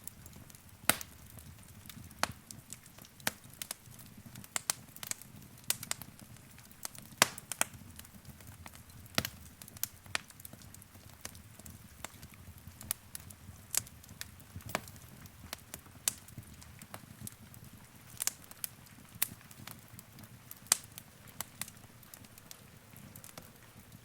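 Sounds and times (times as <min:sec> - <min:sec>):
soft low rumble of flames: 0:00.0 - 0:24.0
wood fire popping and snapping: 0:00.0 - 0:24.0.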